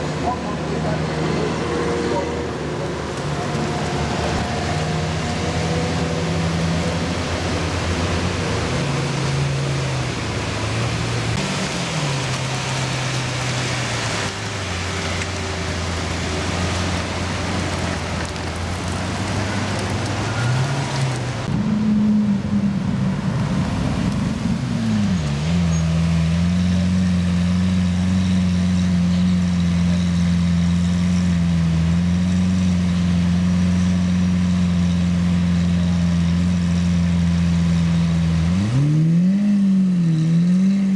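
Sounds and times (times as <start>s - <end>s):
car engines revving: 0.0s - 40.9s
rain hissing: 5.9s - 21.5s.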